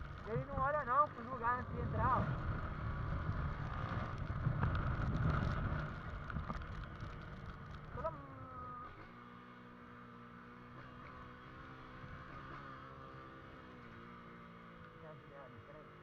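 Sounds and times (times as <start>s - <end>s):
motorcycle engine: 0.0s - 16.0s.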